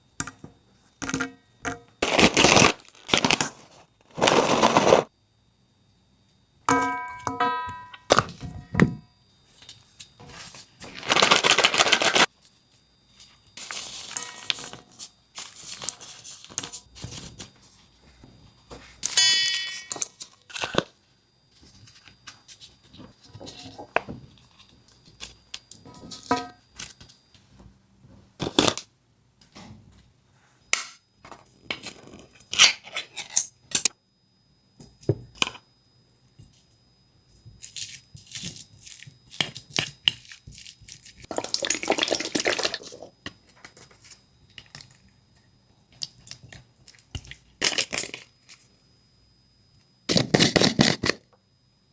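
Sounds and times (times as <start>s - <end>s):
ringing clink: 6.7s - 8.8s, 19.1s - 20.2s
utensils and dishes clinking: 14.0s - 15.0s, 19.0s - 20.4s.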